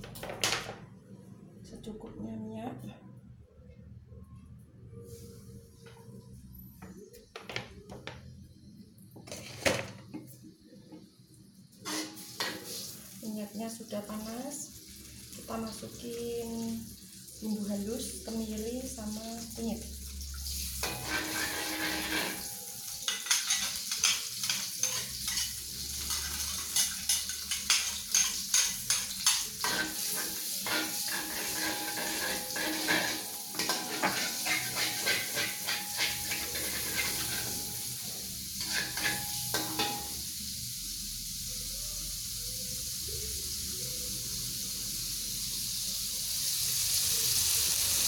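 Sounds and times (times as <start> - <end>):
paste sizzling in hot oil: 11.7 - 13.3, 19.4 - 48.0
spatula scraping pan: 11.8 - 12.8, 20.8 - 40.1.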